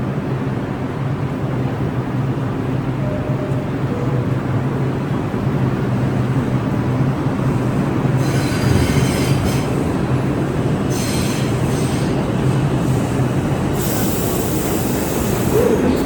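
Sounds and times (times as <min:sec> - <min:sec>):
subway train rumbling: 0:00.0 - 0:16.0
train wheels squealing on rails: 0:08.1 - 0:09.9, 0:10.8 - 0:16.0.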